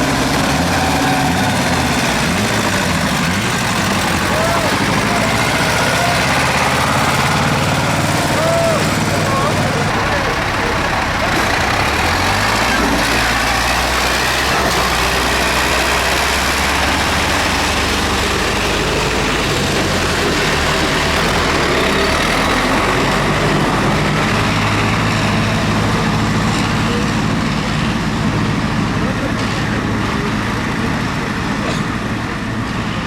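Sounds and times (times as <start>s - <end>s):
tractor engines humming: 0.0s - 33.0s.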